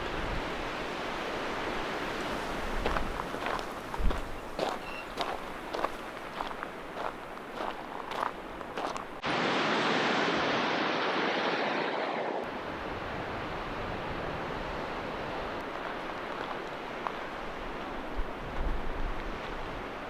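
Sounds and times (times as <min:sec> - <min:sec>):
wind rumble on microphone: 0:00.0 - 0:07.1, 0:12.4 - 0:20.0.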